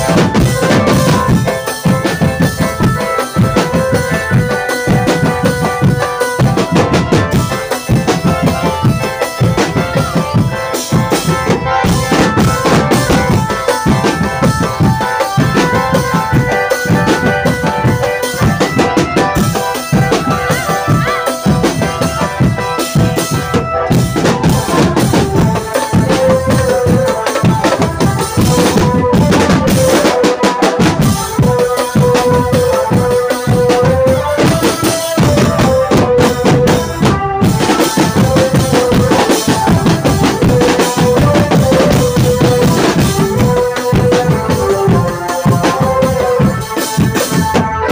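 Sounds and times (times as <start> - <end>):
driving drum rhythm: 0.0 - 47.9
melody with long held notes: 0.0 - 47.9.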